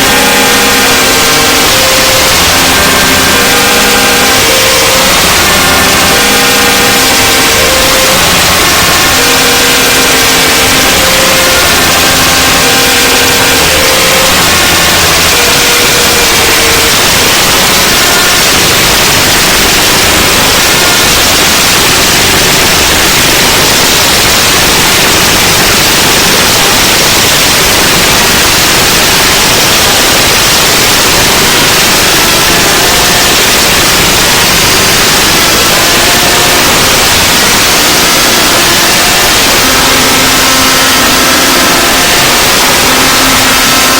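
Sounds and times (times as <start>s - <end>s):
loud static hiss: 0.0s - 43.9s.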